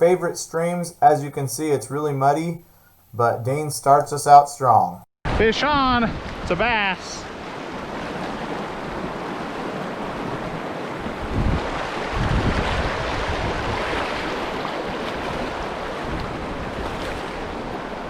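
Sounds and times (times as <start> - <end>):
wind buffeting microphone: 5.3 - 18.0
fast stream rushing: 6.2 - 18.0.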